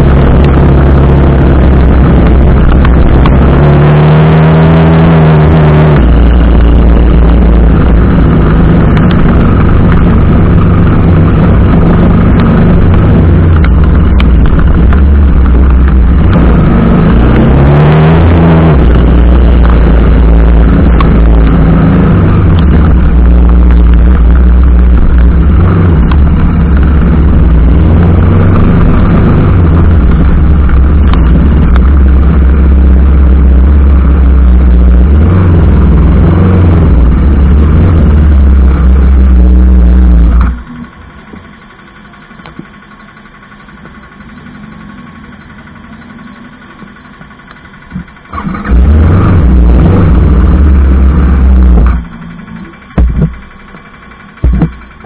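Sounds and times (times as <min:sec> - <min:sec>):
wind rush on microphone: 0:00.0 - 0:40.6
motorcycle engine: 0:00.0 - 0:55.0
steady hum: 0:00.0 - 0:55.0.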